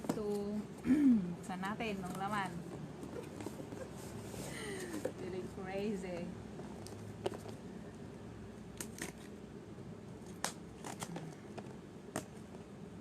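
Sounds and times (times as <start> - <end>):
packaging clicks and snaps: 10.2 - 12.4.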